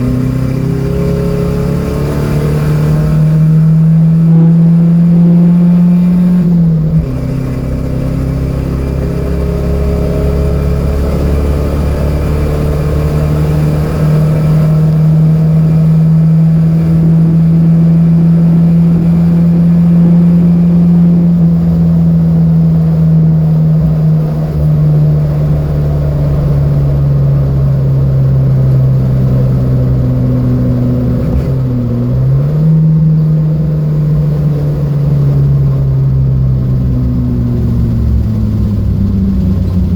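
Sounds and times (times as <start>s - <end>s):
car engine revving high: 0.0s - 39.9s.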